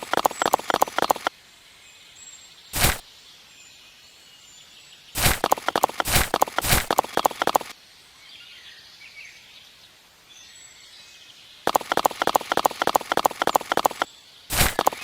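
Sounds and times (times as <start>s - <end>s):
rapid sharp clicks: 0.0s - 1.3s, 2.8s - 3.0s, 5.2s - 7.8s, 11.7s - 15.0s.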